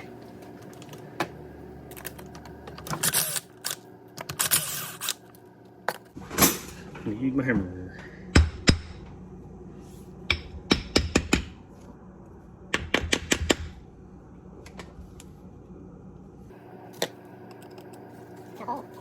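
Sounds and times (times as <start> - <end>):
hammer tapping metal: 10.3 - 11.5.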